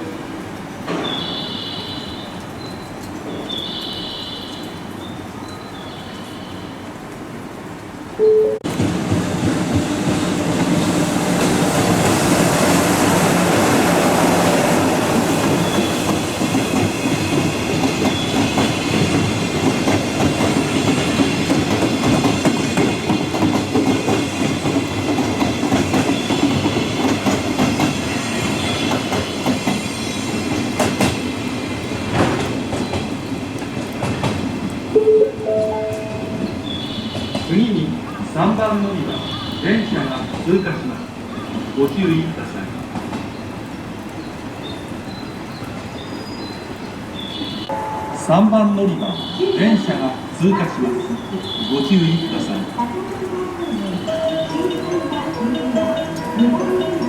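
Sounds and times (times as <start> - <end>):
train wheels clattering: 8.7 - 34.8.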